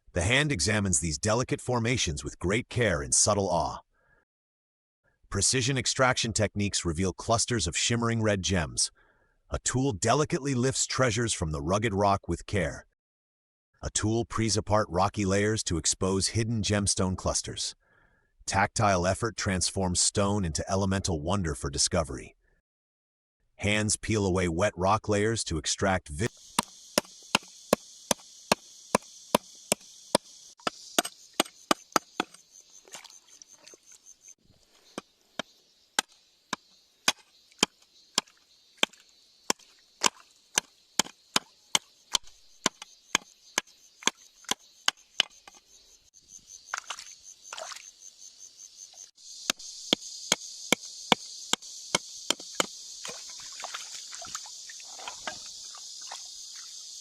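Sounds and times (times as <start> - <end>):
insects chirring: 26.2 - 57.0
metal tool chipping rock: 28.1 - 32.4, 34.9 - 45.6.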